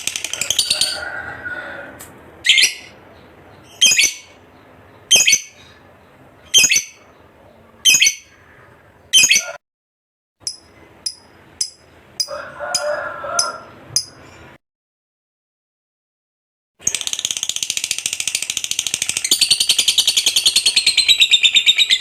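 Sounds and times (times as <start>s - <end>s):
thin bird chirps: 2.4s - 9.6s
lovebird shrill calls: 3.7s - 4.3s, 5.1s - 5.6s, 6.5s - 7.0s, 7.9s - 8.3s.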